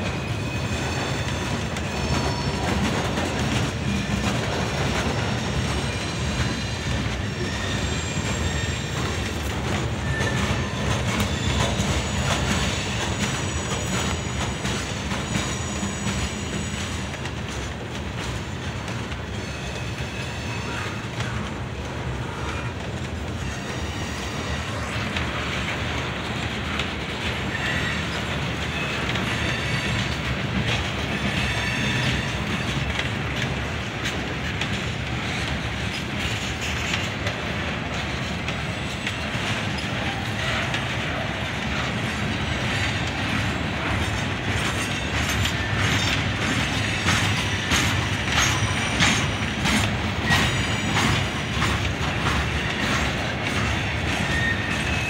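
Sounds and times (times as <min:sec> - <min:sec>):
faint high wheel squeals: 0:00.0 - 0:17.2, 0:18.8 - 0:21.4, 0:22.2 - 0:25.6, 0:27.4 - 0:33.0, 0:38.2 - 0:55.0
steel wheels rumbling on rail: 0:00.0 - 0:55.0
clicking over rail joints: 0:24.8 - 0:55.0.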